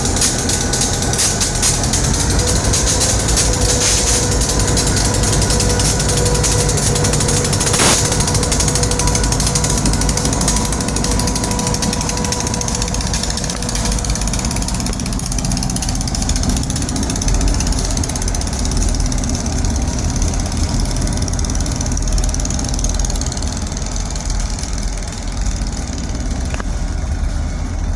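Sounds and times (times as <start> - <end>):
faint steady whine: 0.0 - 20.8
diesel locomotive engine rumble: 0.0 - 27.9.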